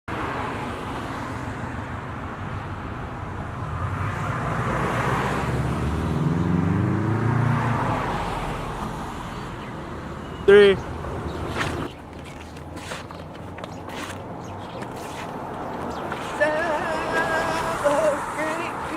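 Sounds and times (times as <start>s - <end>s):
road traffic: 0.1s - 18.9s
car driving past: 3.6s - 9.5s, 14.9s - 18.9s.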